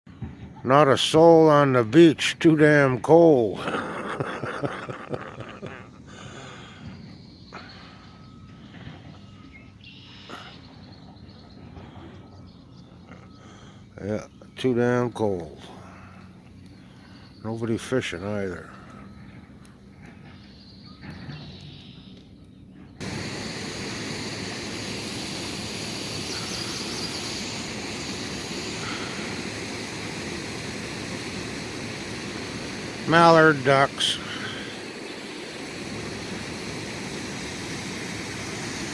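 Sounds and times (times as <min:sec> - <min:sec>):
outdoor beach background noise: 0:00.1 - 0:38.9
river rushing: 0:23.0 - 0:38.9.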